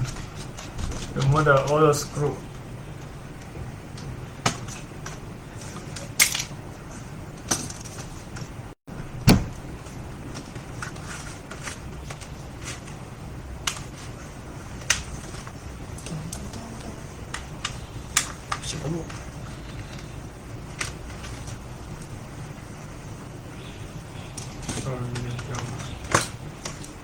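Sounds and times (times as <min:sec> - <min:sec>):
steady low hum: 0:00.0 - 0:27.0
dull knock: 0:09.3 - 0:09.6.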